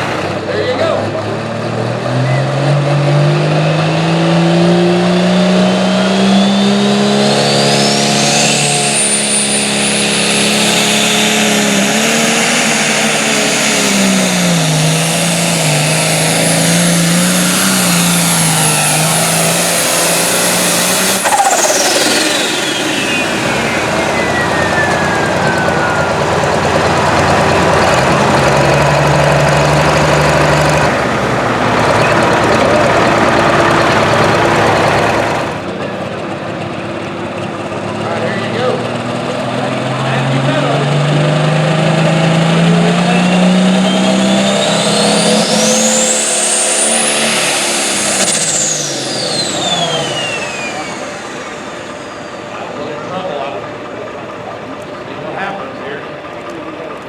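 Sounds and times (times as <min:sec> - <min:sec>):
tractor engine under load: 0:00.0 - 0:03.2, 0:05.3 - 0:57.0
turbocharger whistle: 0:03.7 - 0:35.7, 0:40.0 - 0:53.6.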